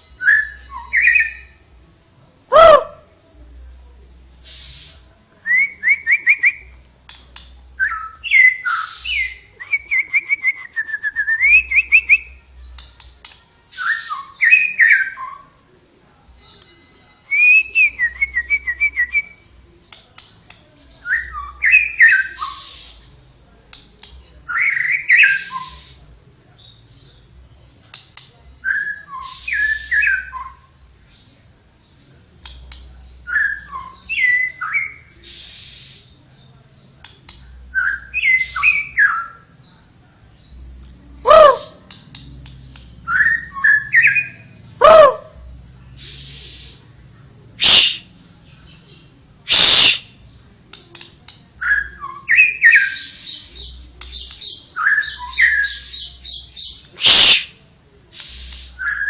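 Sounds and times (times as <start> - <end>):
songbird whistling and trilling: 0.1 - 1.6, 4.4 - 15.5, 17.3 - 19.6, 20.2 - 26.0, 28.6 - 31.2, 31.8 - 36.2, 37.6 - 39.7, 43.0 - 45.3, 47.6 - 50.2, 50.9 - 57.6, 58.2 - 59.0.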